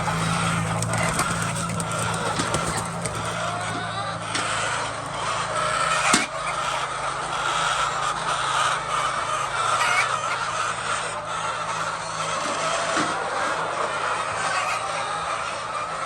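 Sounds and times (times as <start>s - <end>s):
steady low hum: 0.0s - 8.2s
chickens clucking: 0.0s - 16.0s.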